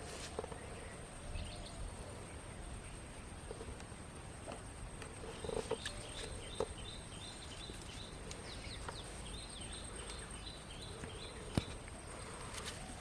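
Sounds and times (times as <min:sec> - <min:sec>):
bird chirping: 0:05.3 - 0:13.0.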